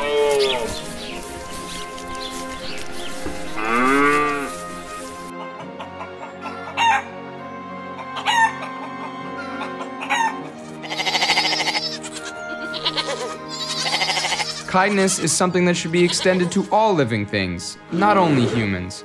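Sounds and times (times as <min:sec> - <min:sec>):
cow mooing: 0:00.0 - 0:00.7, 0:03.4 - 0:04.6
chicken calling: 0:00.0 - 0:07.1, 0:07.9 - 0:14.6
soft background music: 0:00.0 - 0:19.0.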